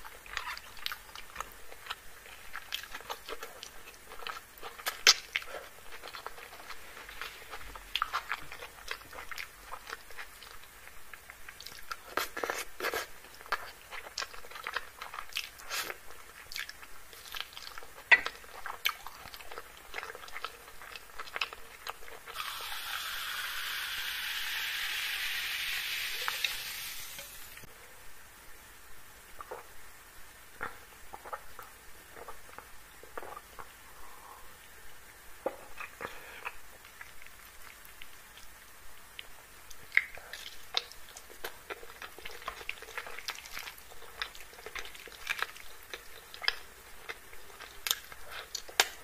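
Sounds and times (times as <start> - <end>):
wet chewing and lip-smacking: 0.0 - 22.5, 35.7 - 49.0.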